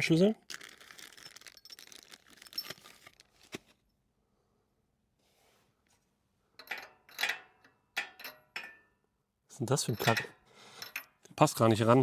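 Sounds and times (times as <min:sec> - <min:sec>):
metal wrench clinking and scraping: 0:01.0 - 0:03.0, 0:06.6 - 0:08.9, 0:09.8 - 0:11.2.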